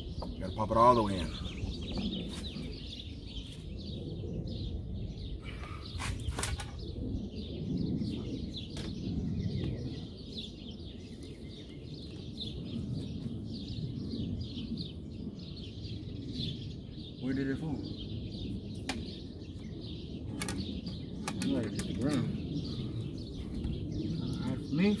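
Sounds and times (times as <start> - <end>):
low background rumble: 0.0 - 25.0
small birds chirping: 0.0 - 25.0
sharp clicks: 20.3 - 22.3.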